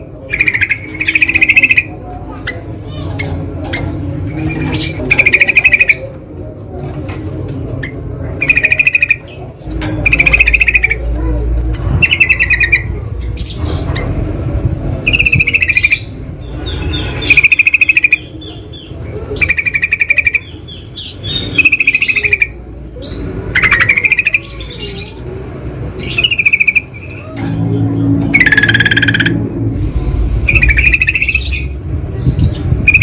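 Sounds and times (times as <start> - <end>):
bulbuls chattering calls: 0.0 - 6.7, 7.5 - 33.0.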